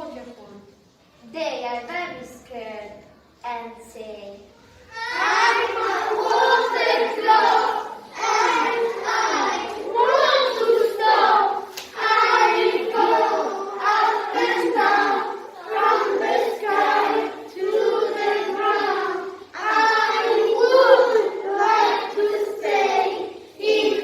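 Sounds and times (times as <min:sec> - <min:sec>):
children singing in unison: 0:04.9 - 0:24.0.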